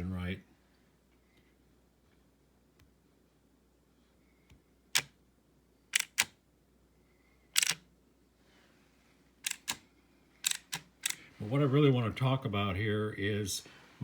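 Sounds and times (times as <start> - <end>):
toy car steering motor clicking: 9.4 - 9.8.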